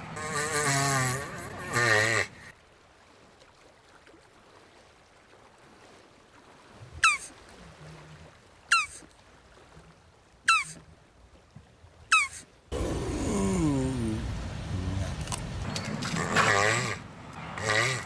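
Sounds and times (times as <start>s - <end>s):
tortoise squeaky calls: 7.0s - 7.3s, 8.7s - 9.0s, 10.5s - 10.8s, 12.1s - 12.9s.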